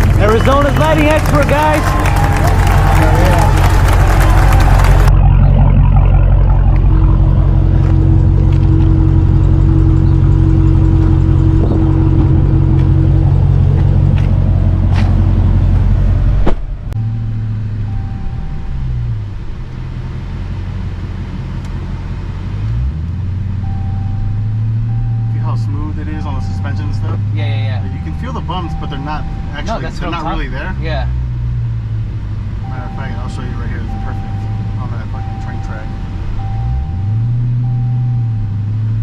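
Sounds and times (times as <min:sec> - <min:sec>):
car engine drone: 0:00.0 - 0:39.0.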